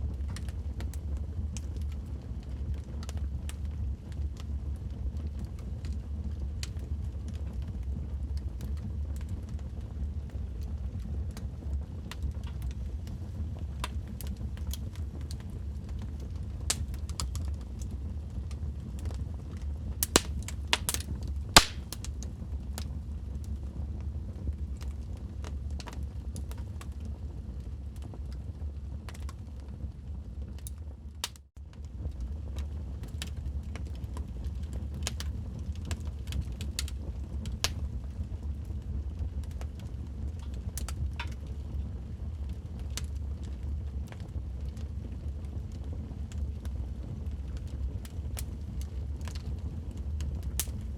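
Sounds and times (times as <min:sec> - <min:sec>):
logs crackling in fireplace: 0:00.0 - 0:50.9
fire pops: 0:10.5 - 0:22.9, 0:30.6 - 0:41.7, 0:50.2 - 0:50.9
steady low rumble: 0:50.6 - 0:50.9.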